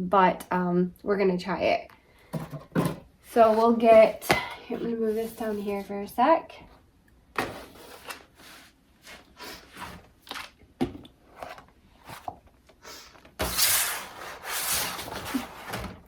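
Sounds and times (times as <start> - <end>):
objects knocking and scraping: 2.3 - 4.5.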